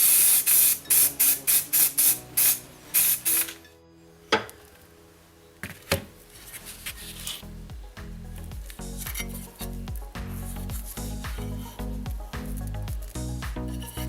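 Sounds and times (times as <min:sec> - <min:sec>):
hissing spray bursts: 0:00.0 - 0:03.6
quiet background music: 0:00.0 - 0:14.0.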